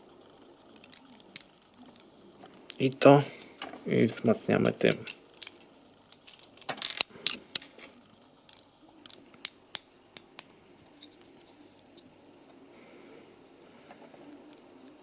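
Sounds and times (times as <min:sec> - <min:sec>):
plastic toy bricks clicking: 0:04.6 - 0:07.8, 0:08.4 - 0:10.5.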